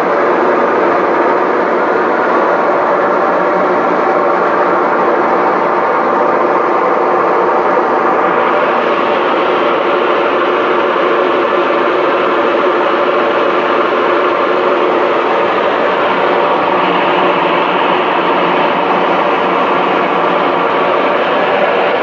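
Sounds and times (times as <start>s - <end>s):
airliner engines roaring: 0.0s - 22.0s
engine hum tones: 13.9s - 22.0s.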